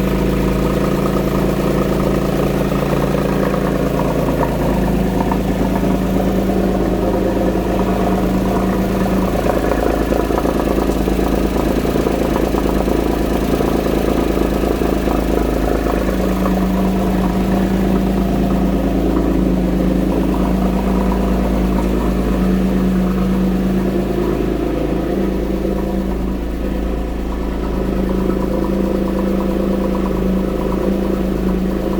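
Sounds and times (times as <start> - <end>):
car engine idling: 0.0 - 31.9.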